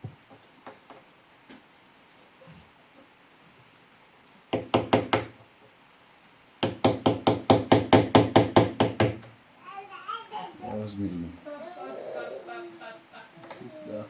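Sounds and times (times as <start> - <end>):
rapid knocking with dull thuds: 4.5 - 5.4, 6.6 - 9.3.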